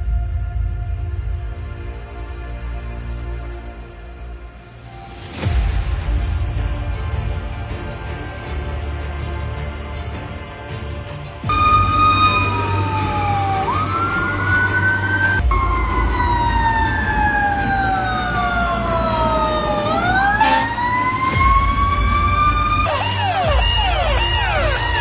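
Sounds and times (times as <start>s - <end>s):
fire engine siren wailing: 11.5s - 25.0s.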